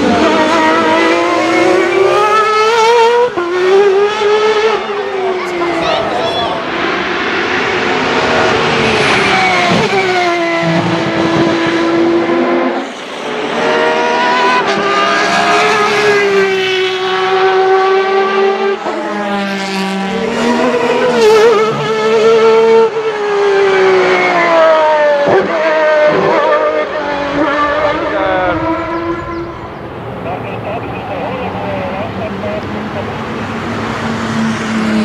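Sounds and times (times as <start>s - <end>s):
racing engine revving: 0.0s - 35.0s.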